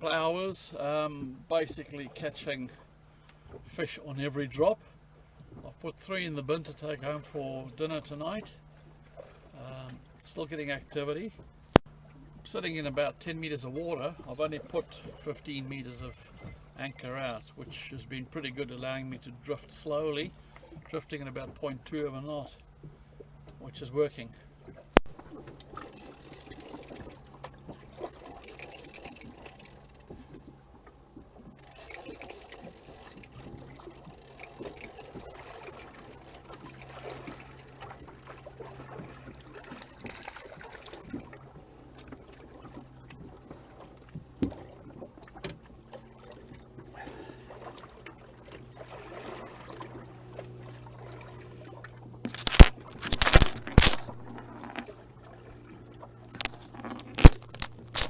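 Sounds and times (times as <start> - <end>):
water lapping against boat hull: 0.0 - 52.9, 53.8 - 58.0
scraping and rustling near microphone: 52.3 - 54.9, 56.3 - 58.0.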